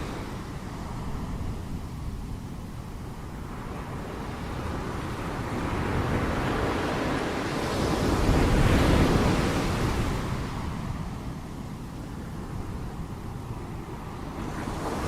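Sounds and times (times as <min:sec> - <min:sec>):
ocean waves crashing: 0:00.0 - 0:15.0.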